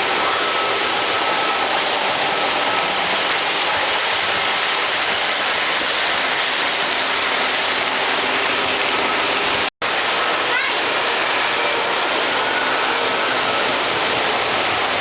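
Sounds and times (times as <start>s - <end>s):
model trains clattering on tracks: 9.8s - 15.0s.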